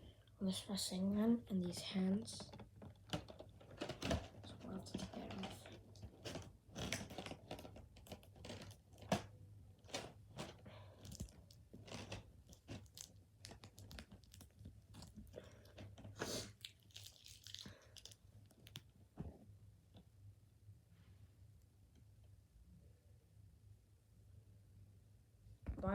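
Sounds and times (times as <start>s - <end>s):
packaging rustling: 2.6s - 18.9s
tearing rustle: 9.8s - 18.8s.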